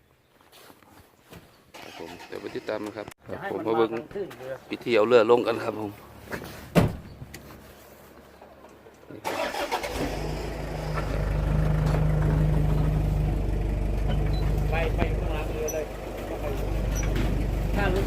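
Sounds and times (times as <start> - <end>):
engine starting and running: 1.8 - 3.1, 9.2 - 18.0.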